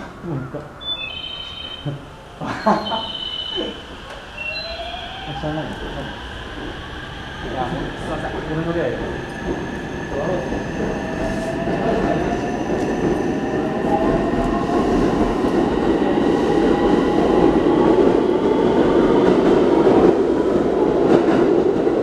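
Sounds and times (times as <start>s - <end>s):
train wheels rumbling on track: 5.3s - 22.0s.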